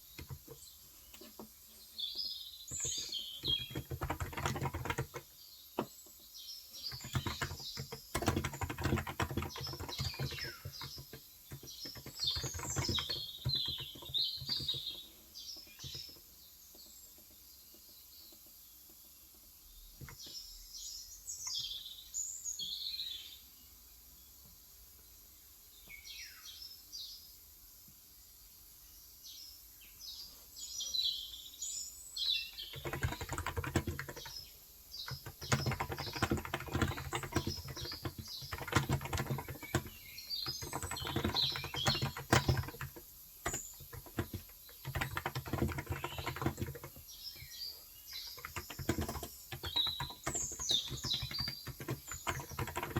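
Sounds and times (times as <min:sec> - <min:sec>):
fast keyboard typing: 0:00.0 - 0:01.3, 0:02.7 - 0:05.9, 0:06.8 - 0:16.2, 0:32.5 - 0:52.9
birds chirping: 0:00.0 - 0:23.4, 0:29.3 - 0:52.9.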